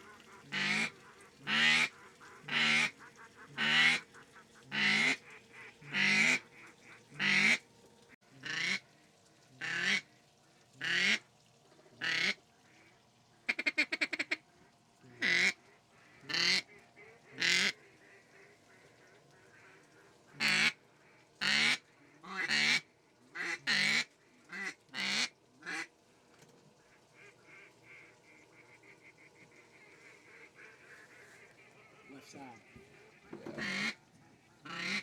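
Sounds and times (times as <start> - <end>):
duck call feeding chatter: 0.0 - 7.6, 8.4 - 8.8, 9.6 - 10.0, 10.8 - 11.2, 12.0 - 12.9, 13.5 - 14.4, 15.1 - 20.8, 21.4 - 25.9, 26.8 - 35.0
duck call quacks: 0.0 - 7.6, 8.4 - 8.8, 9.6 - 10.0, 10.8 - 11.2, 12.0 - 12.4, 13.5 - 14.4, 15.1 - 20.8, 21.4 - 25.9, 27.1 - 34.0, 34.6 - 35.0.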